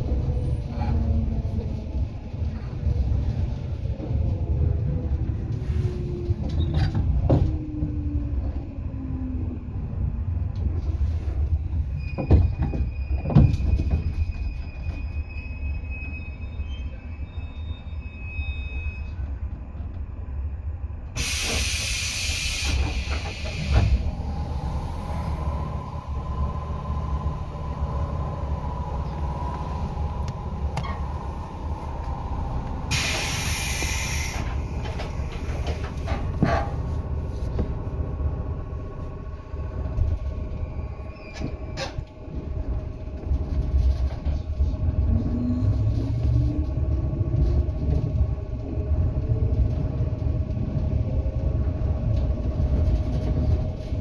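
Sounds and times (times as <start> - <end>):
train rumble: 0.0 - 54.0
falling whine: 23.2 - 36.3
loud hissing bursts: 32.9 - 34.5.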